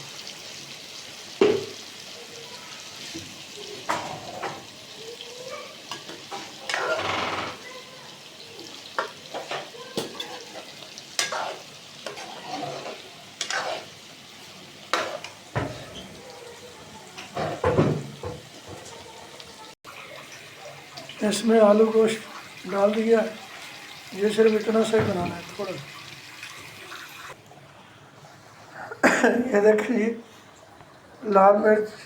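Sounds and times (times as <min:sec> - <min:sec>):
food sizzling in a pan: 0:00.0 - 0:27.4
spoon scraping metal pan: 0:09.3 - 0:14.0, 0:14.9 - 0:16.1.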